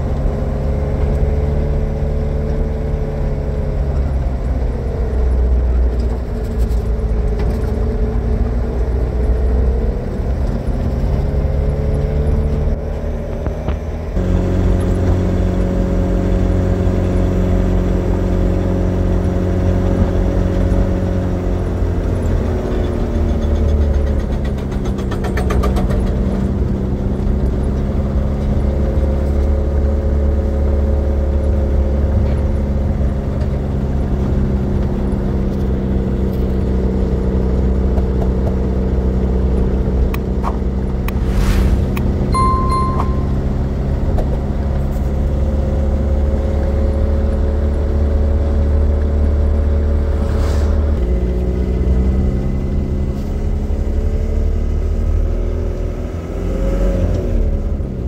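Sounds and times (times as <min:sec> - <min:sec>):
road noise: 0:37.8 - 0:43.7, 0:47.6 - 0:54.3.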